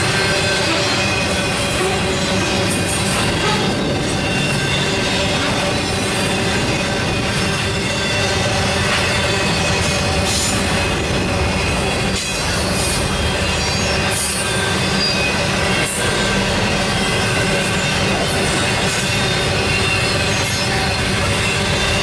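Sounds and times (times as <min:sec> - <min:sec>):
freight cars rumbling on rails: 0:00.0 - 0:22.0
high wheel squeal: 0:00.0 - 0:22.0.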